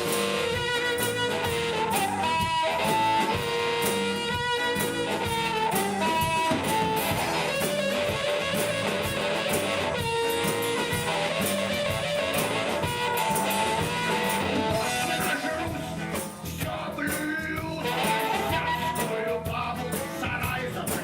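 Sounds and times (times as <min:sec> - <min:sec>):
long held melodic lead notes: 0:00.0 - 0:16.4
drums: 0:00.0 - 0:21.0
guitar: 0:00.0 - 0:21.0.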